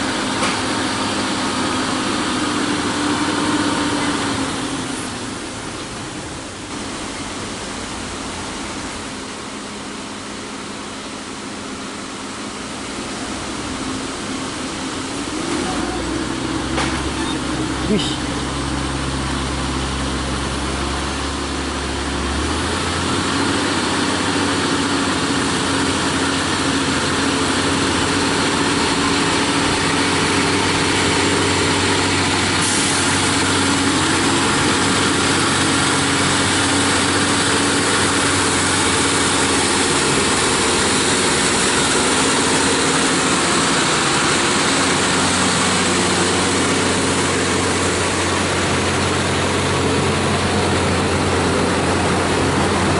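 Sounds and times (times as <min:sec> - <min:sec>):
diesel truck engine running: 0:00.0 - 0:52.9.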